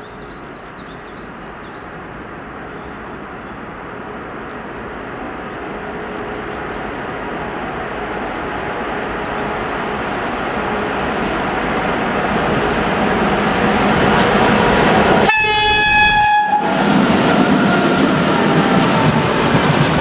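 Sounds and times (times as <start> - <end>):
freight train rail noise: 0.0 - 20.0
locomotive horn blast: 14.0 - 19.0.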